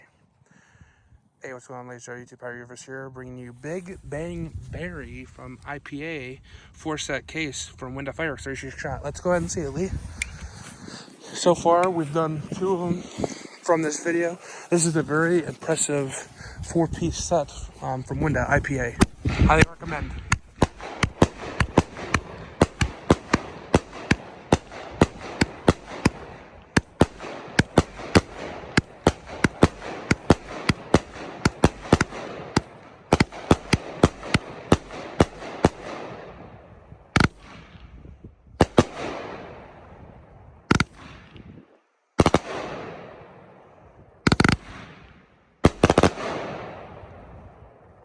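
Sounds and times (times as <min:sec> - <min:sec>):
fireworks bangs: 0:09.2 - 0:36.6, 0:38.6 - 0:39.9, 0:42.2 - 0:43.3, 0:44.3 - 0:47.0.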